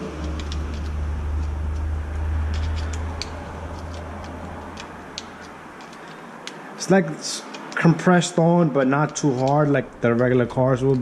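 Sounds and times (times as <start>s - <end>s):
low steady hum: 0.0s - 6.5s
clicks of small metal parts: 0.0s - 6.6s, 7.4s - 8.0s.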